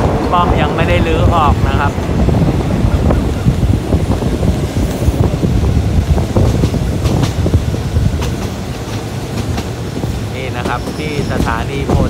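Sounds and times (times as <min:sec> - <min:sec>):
sharp train track clacks: 0:00.0 - 0:12.0
train wheels rumbling on rail: 0:00.0 - 0:12.0.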